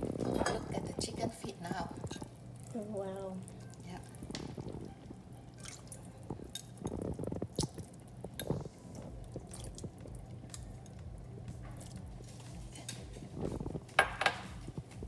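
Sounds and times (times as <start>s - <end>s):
wet squelching in sauce: 9.2s - 11.0s.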